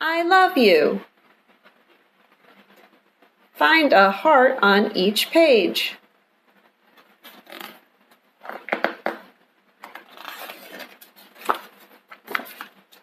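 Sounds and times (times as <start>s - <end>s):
book pages rustling: 6.6s - 13.0s.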